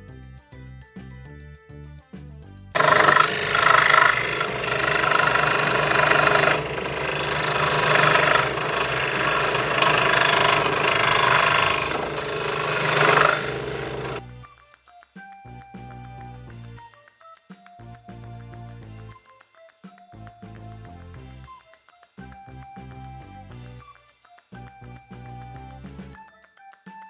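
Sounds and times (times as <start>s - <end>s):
scroll saw cutting wood: 2.8s - 14.2s.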